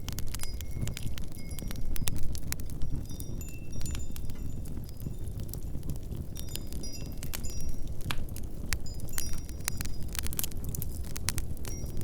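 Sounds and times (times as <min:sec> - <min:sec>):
low rumble of wind: 0:00.0 - 0:12.0
wood fire crackling: 0:00.0 - 0:12.0.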